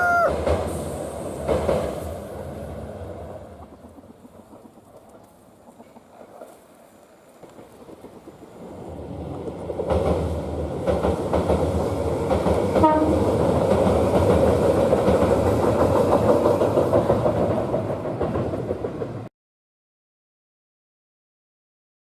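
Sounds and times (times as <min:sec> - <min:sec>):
train wheels roaring on rails: 0:00.0 - 0:19.3
clacks at rail joints: 0:00.3 - 0:19.3.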